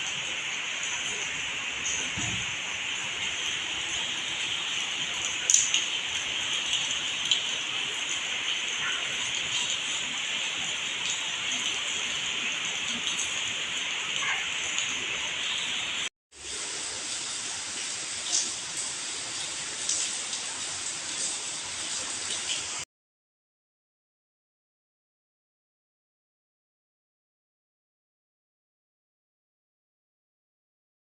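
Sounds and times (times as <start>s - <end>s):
heavy rain hissing: 0.0s - 22.9s.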